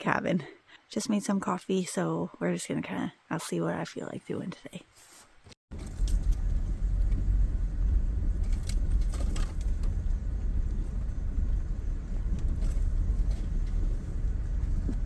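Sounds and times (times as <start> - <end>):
car rumbling on dirt road: 5.7 - 15.0
light rattles and clicks: 5.7 - 15.0.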